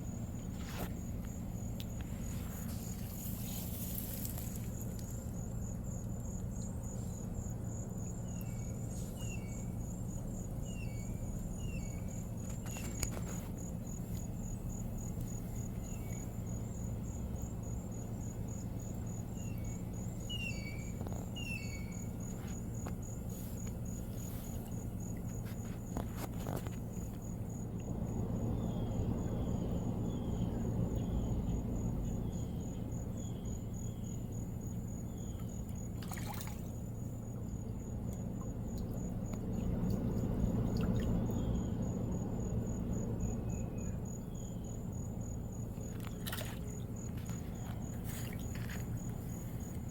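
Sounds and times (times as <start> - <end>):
cricket trilling: 0.0 - 49.9
bird chirping: 19.4 - 22.1.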